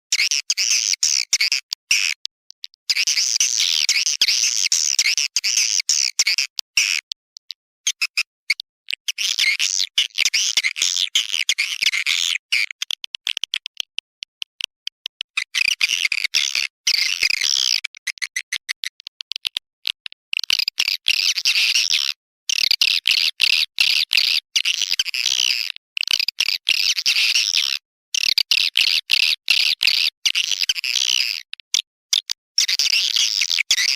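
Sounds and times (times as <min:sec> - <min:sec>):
fast clicks: 0:12.7 - 0:15.5, 0:17.8 - 0:20.7.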